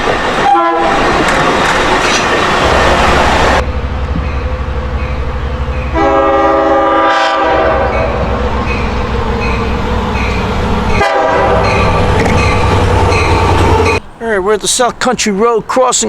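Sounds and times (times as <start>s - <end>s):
train wheels clacking on rails: 0.0s - 6.4s, 7.5s - 15.8s
train air horn: 0.4s - 1.0s, 5.9s - 8.4s, 10.9s - 11.9s.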